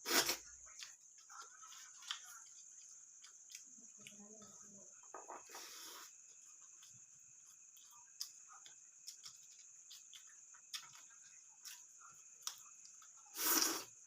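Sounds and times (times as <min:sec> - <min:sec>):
faint high hiss: 0:04.7 - 0:08.0, 0:11.6 - 0:14.0.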